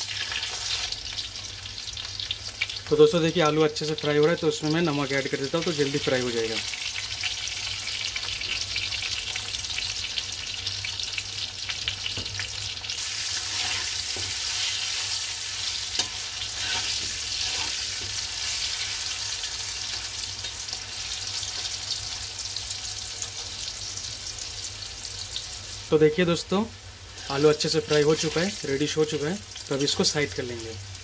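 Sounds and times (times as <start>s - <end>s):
potatoes sizzling in oil: 0.0s - 31.0s
metal spatula scraping pan: 13.4s - 19.1s.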